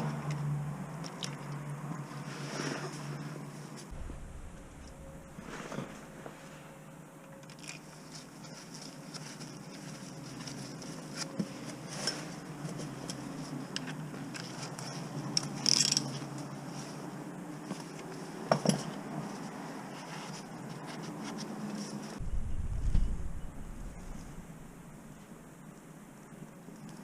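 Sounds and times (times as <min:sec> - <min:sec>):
steady low hum: 0:03.9 - 0:07.4, 0:22.2 - 0:26.8.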